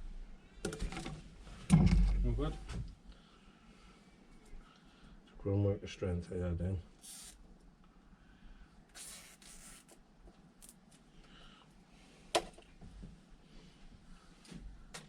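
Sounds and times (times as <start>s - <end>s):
short scraping hiss: 7.0s - 7.4s, 8.9s - 10.0s.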